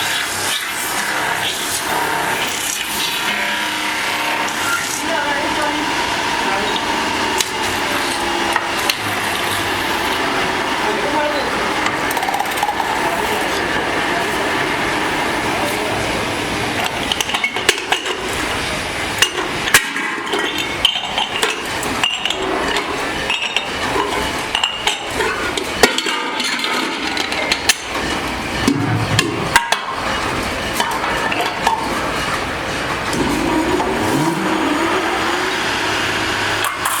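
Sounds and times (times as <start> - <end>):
workshop machine din: 0.0 - 37.0.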